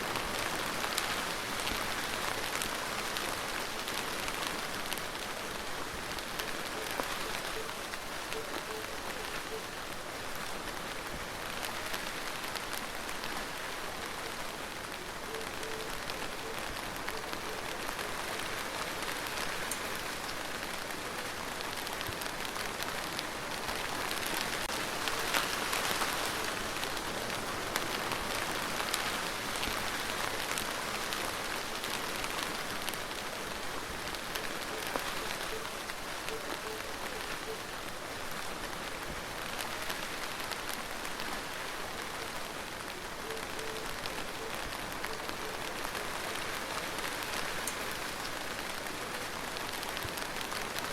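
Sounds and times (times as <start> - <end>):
steady rain hiss: 0.0 - 50.9
raindrop ticks: 14.0 - 37.7, 43.2 - 50.9.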